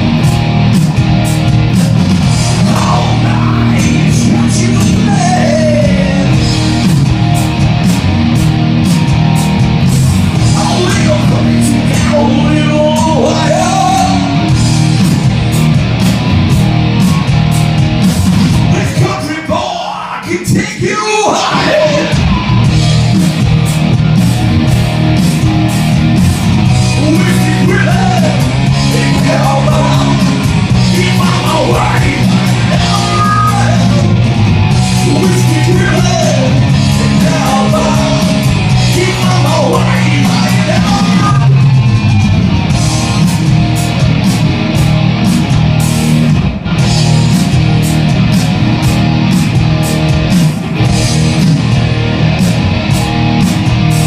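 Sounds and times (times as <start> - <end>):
live rock band playing: 0.0 - 54.0
sung and shouted vocal: 2.6 - 6.4, 18.7 - 22.4, 27.0 - 34.2, 34.9 - 41.6.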